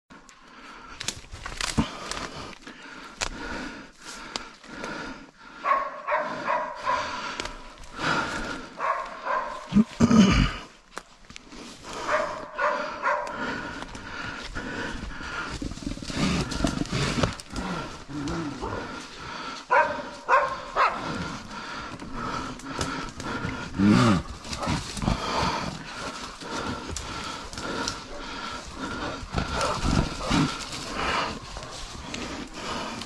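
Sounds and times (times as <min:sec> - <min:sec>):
bear growling: 0:05.6 - 0:10.7, 0:11.8 - 0:33.0.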